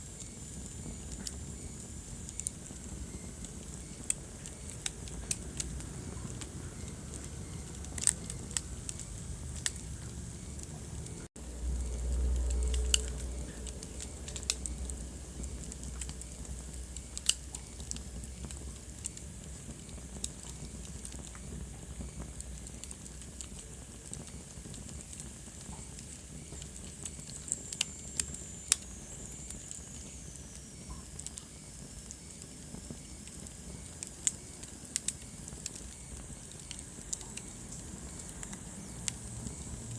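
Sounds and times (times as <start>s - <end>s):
wood fire crackling: 0.0s - 39.9s
low rumble: 5.2s - 17.2s.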